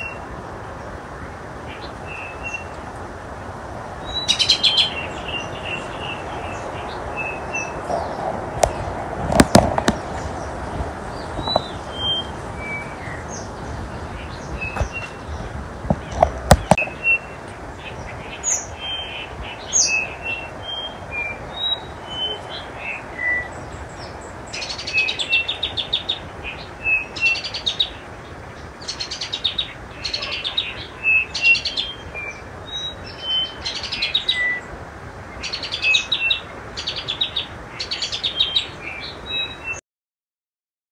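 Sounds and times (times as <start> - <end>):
steady background hiss: 0.0 - 39.8
wild birds chirping and calling: 3.9 - 39.8
sharp knocks: 8.6 - 10.2, 15.9 - 16.8.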